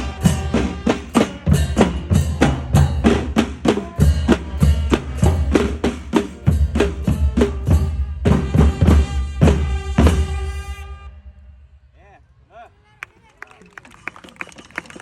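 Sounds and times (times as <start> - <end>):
drums and wood-block strikes: 0.0 - 10.4
bass drum: 0.0 - 10.6.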